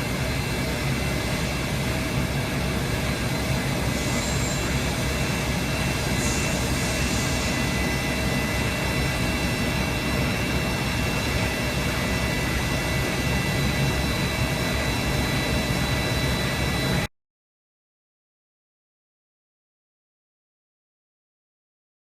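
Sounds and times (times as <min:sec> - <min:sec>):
machine tool whining: 0:00.0 - 0:17.0.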